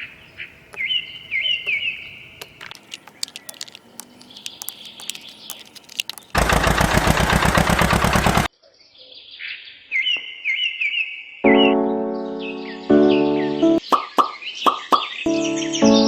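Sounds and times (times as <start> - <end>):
small birds chirping: 0.0 - 6.4, 8.6 - 16.0.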